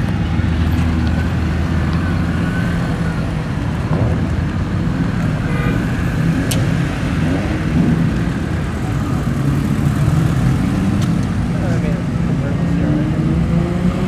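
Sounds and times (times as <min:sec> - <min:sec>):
car engine idling rumble: 0:00.0 - 0:12.5.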